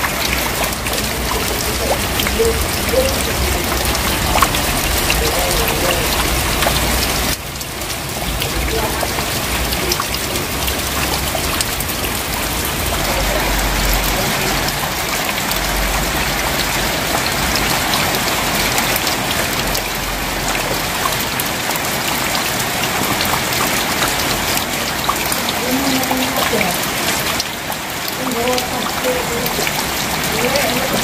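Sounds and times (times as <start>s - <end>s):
rain on metal roofing: 0.0s - 31.0s
rain on running water: 0.0s - 31.0s.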